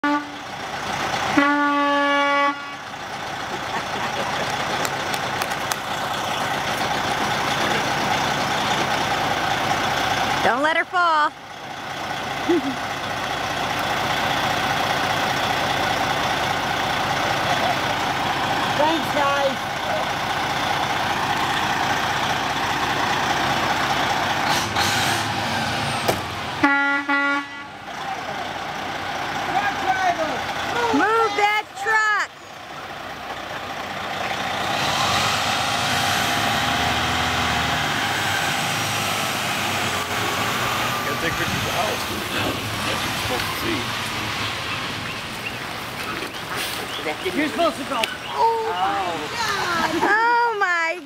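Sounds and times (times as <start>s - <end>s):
truck horn honking: 0.0s - 3.1s, 24.4s - 28.4s, 29.5s - 32.2s
road noise: 0.0s - 51.0s
truck engine running: 0.0s - 51.0s.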